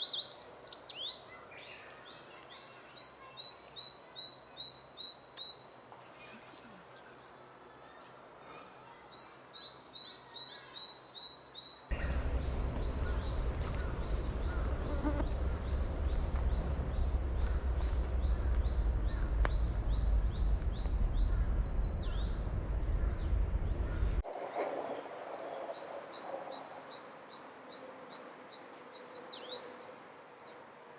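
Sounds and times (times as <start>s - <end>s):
songbird singing: 0.0s - 30.6s
loud low rumble: 11.9s - 24.3s.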